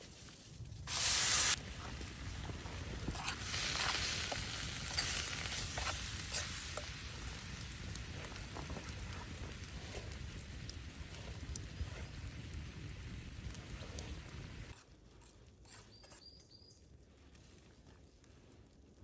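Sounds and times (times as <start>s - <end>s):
hissing with sharp crackles: 0.0s - 14.8s
steady low rumble: 0.5s - 14.7s.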